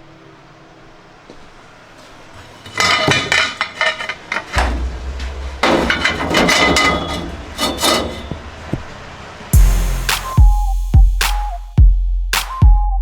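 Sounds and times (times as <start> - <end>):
low steady hum: 2.6 - 11.6
hammer blows on metal: 9.6 - 11.6.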